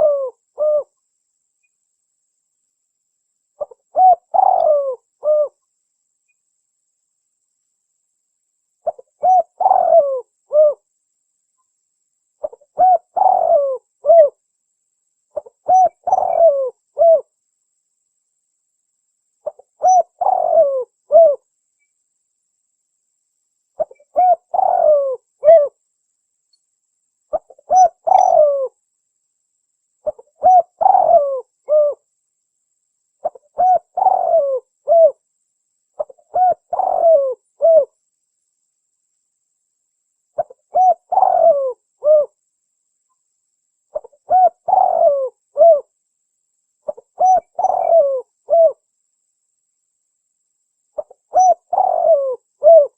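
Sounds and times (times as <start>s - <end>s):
dove cooing: 0.0s - 1.0s, 3.6s - 5.6s, 8.8s - 10.8s, 12.4s - 14.4s, 15.4s - 17.3s, 19.4s - 21.4s, 23.8s - 25.8s, 27.3s - 28.8s, 30.0s - 32.0s, 33.2s - 35.2s, 36.0s - 38.0s, 40.4s - 42.4s, 43.9s - 45.9s, 46.9s - 48.8s, 51.0s - 52.9s.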